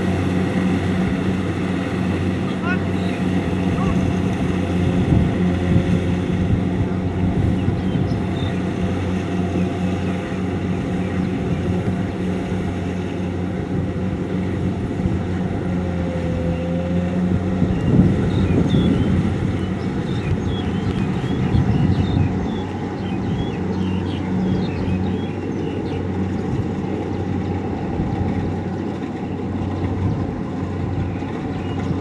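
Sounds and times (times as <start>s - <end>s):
combine harvester engine running: 0.0s - 32.0s.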